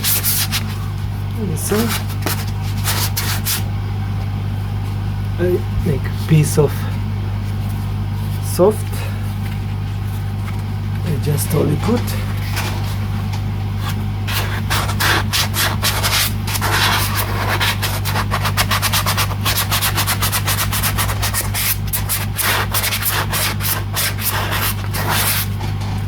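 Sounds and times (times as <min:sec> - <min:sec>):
sandpaper sanding wood: 0:00.0 - 0:00.6, 0:01.7 - 0:03.6, 0:14.3 - 0:25.6
steady low hum: 0:00.0 - 0:26.0.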